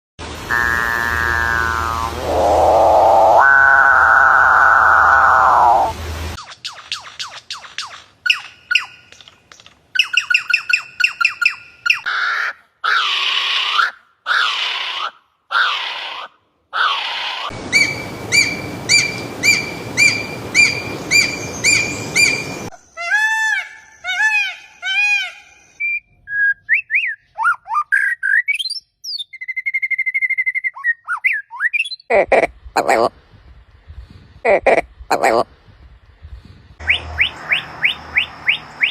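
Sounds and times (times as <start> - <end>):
bird chirps and calls: 5.2 - 9.3, 36.8 - 38.9
steady hiss: 17.5 - 22.7.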